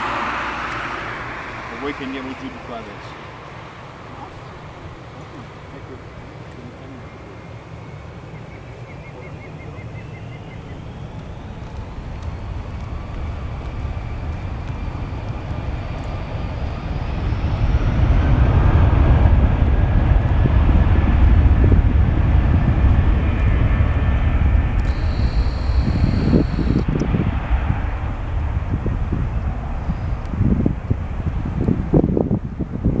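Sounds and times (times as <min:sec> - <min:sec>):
jet engines spooling up: 0:00.0 - 0:21.4, 0:24.3 - 0:28.6
jet low roar: 0:00.0 - 0:33.0.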